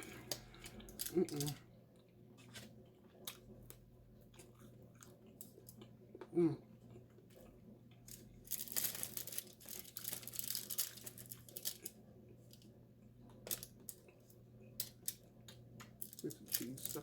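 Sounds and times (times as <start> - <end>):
crunchy chewing: 0.0 - 6.0.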